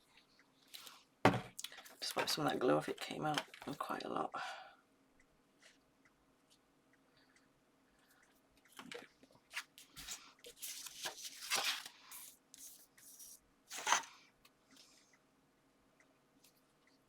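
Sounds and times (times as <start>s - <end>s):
paper rustling and crinkling: 9.5s - 14.1s.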